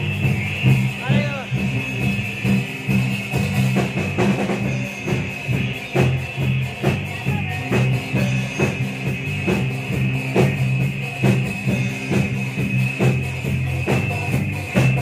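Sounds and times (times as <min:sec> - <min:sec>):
drum kit hits: 0:00.0 - 0:15.0
electric bass line: 0:00.0 - 0:15.0
electric guitar: 0:00.0 - 0:15.0.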